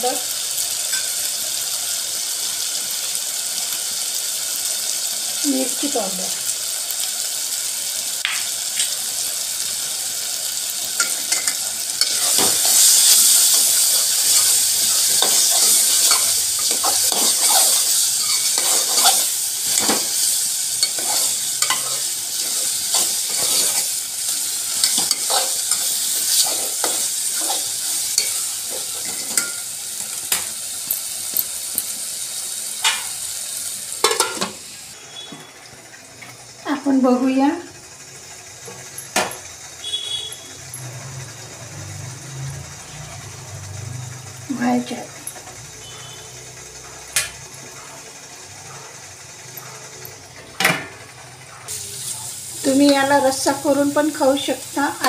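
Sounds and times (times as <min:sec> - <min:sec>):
chutney sizzling in a pot: 0:00.0 - 0:55.0
ladle scraping a pot: 0:14.0 - 0:23.9.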